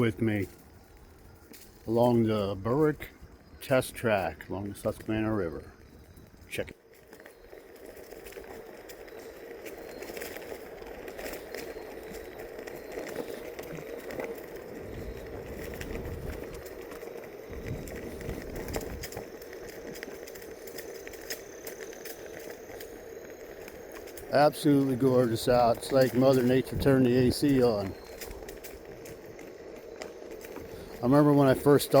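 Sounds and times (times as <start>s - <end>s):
small crackles from surface: 0.0s - 32.0s
tyre noise: 0.0s - 32.0s
wind rumble on microphone: 4.4s - 6.6s, 14.6s - 19.8s.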